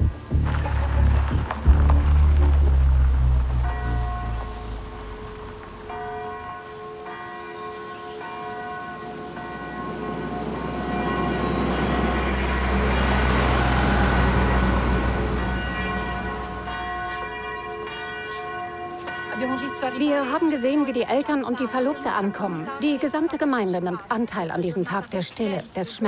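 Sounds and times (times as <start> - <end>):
church bells tolling: 3.2 - 22.1.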